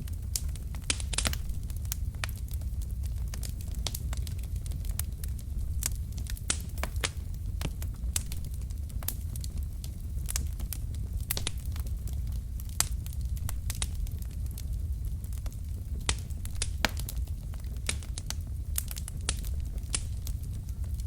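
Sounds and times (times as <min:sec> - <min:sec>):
flames rumbling: 0:00.0 - 0:21.0
logs crackling and popping: 0:00.0 - 0:21.0.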